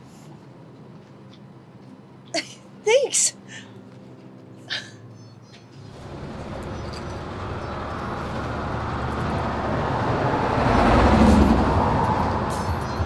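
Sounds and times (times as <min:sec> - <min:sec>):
subway train rumbling: 0:07.3 - 0:13.0.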